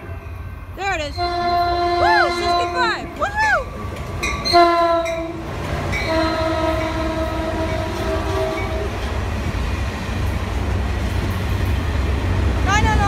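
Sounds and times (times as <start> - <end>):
locomotive horn blast: 0.0 - 9.2
low rumble of passing train: 0.0 - 13.0.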